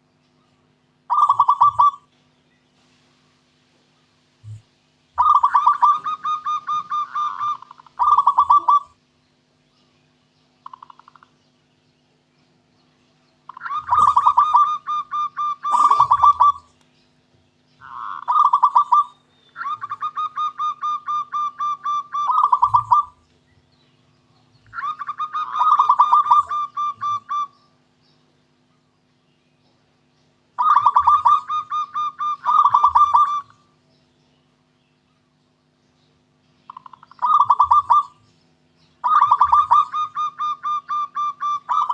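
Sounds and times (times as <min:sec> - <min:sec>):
dove cooing: 0:01.1 - 0:02.1, 0:04.5 - 0:09.0, 0:10.6 - 0:11.4, 0:13.5 - 0:16.8, 0:17.8 - 0:23.2, 0:24.6 - 0:27.7, 0:30.6 - 0:33.7, 0:36.7 - 0:38.2, 0:39.0 - 0:41.9.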